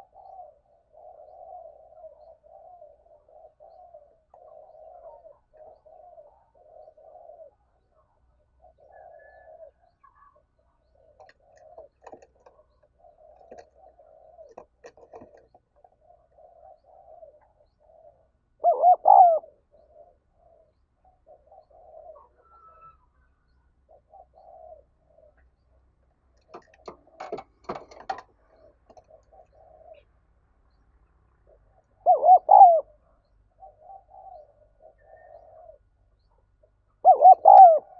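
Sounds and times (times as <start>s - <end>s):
doves cooing: 0.0s - 30.3s, 31.4s - 37.9s
clatter of sharp knocks: 26.4s - 29.0s.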